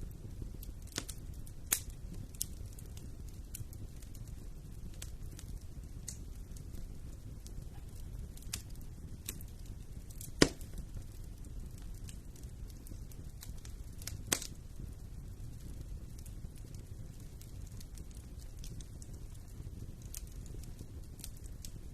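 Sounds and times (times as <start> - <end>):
wood fire crackling: 0.0 - 21.9
sharp loud pop of fire: 10.4 - 10.6.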